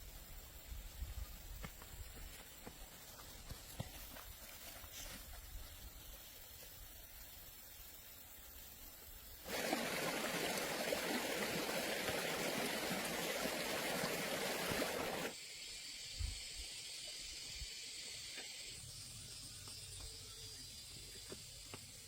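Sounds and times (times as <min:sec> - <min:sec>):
running water: 0:09.4 - 0:15.4.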